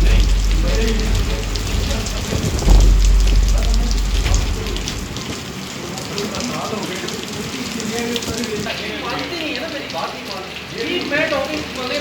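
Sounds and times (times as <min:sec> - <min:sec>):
low rumble: 0:00.0 - 0:05.6
heavy rain falling hard: 0:00.0 - 0:12.0.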